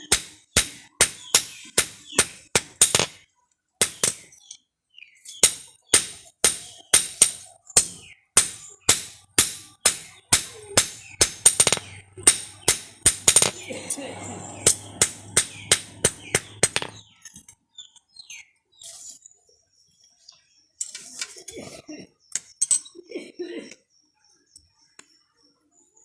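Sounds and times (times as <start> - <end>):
hammer striking steel: 0.0 - 3.2, 5.4 - 17.0.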